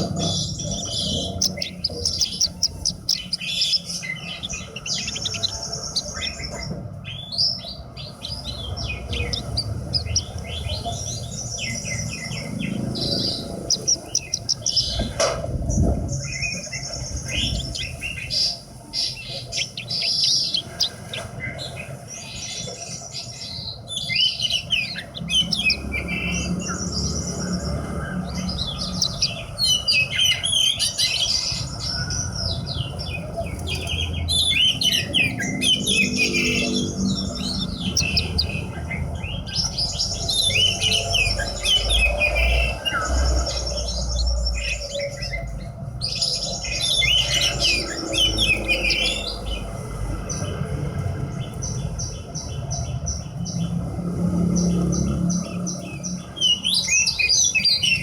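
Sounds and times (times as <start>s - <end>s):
bird singing chirps and trills: 0.0s - 58.0s.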